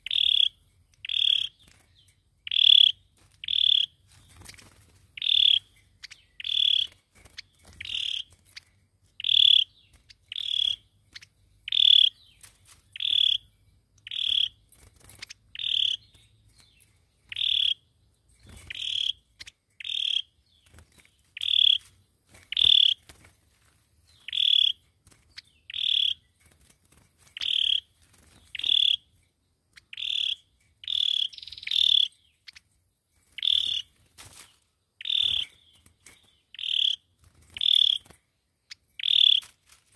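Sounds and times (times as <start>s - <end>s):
bird call notes: 0.0s - 1.8s, 2.4s - 3.9s, 5.2s - 7.0s, 7.6s - 8.4s, 9.2s - 14.6s, 15.6s - 17.8s, 18.4s - 20.8s, 21.4s - 21.9s, 22.5s - 23.0s, 24.1s - 26.3s, 27.4s - 29.1s, 29.8s - 32.5s, 33.3s - 34.0s, 35.0s - 38.1s, 38.7s - 39.6s.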